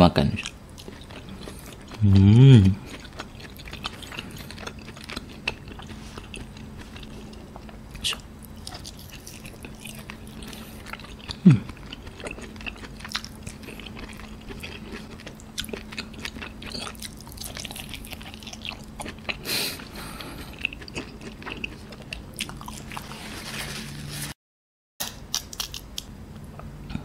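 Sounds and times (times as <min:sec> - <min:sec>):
chewing with wet mouth clicks: 0:02.8 - 0:23.0.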